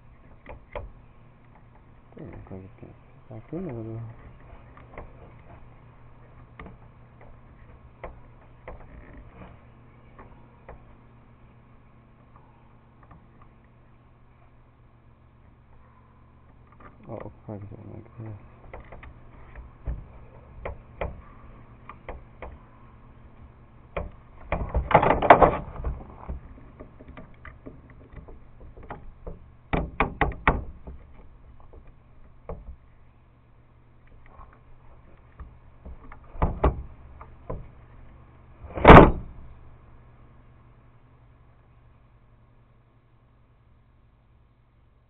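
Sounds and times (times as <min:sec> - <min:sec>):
motor parts clicking and knocking: 0:23.4 - 0:32.9.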